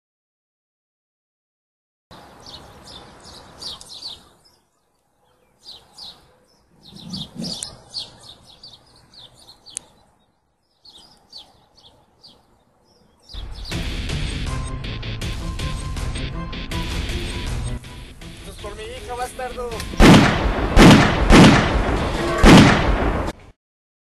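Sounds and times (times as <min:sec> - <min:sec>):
faint outdoor background noise: 0:02.1 - 0:14.5
birds chirping: 0:02.1 - 0:20.5.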